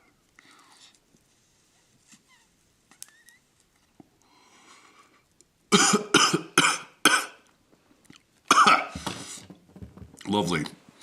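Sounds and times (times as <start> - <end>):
man coughing loudly: 5.7 - 7.4, 8.5 - 9.0.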